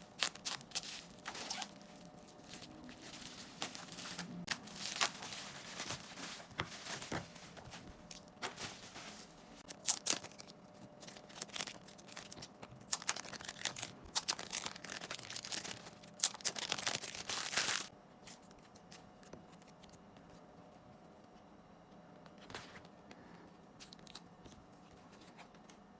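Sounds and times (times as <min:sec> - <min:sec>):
card packaging torn open: 0:00.1 - 0:07.2, 0:09.6 - 0:17.9.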